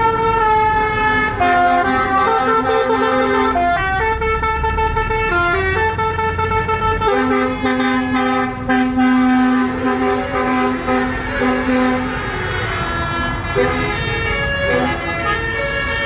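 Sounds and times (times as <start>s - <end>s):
low rumble of engines: 0.0s - 16.0s.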